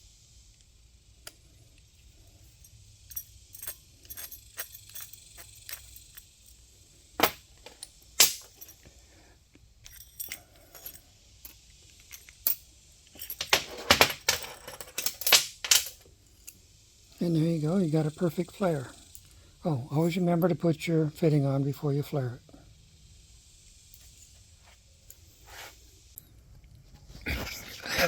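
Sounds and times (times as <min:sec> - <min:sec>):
metallic clicks and clinks of tool: 0:01.2 - 0:06.6, 0:07.2 - 0:08.9, 0:09.8 - 0:16.6.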